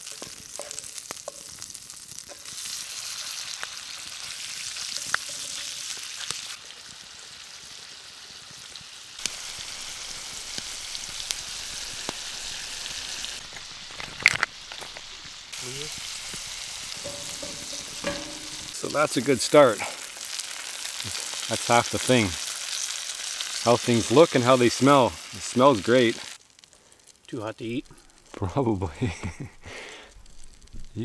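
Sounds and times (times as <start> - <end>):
mussels sizzling in a skillet: 0.0 - 28.7, 29.5 - 31.0
sharp knock: 17.0 - 18.7.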